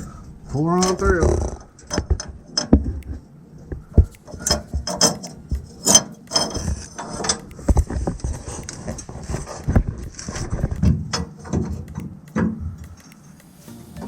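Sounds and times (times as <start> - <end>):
bolt clanking inside metal tube: 4.0 - 7.4
metal scraping: 4.2 - 11.8.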